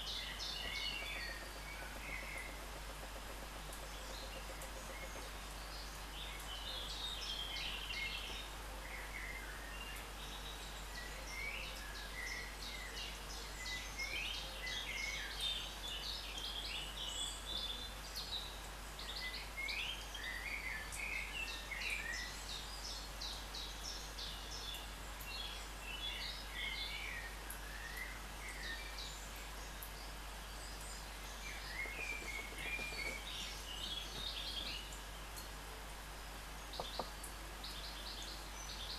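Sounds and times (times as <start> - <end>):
small bird chirping: 0.0 - 35.6, 36.5 - 38.9.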